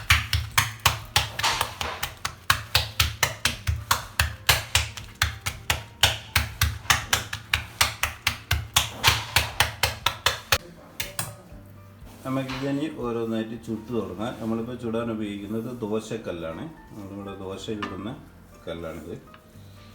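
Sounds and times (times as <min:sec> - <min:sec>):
hands slapping dough: 0:00.0 - 0:12.2.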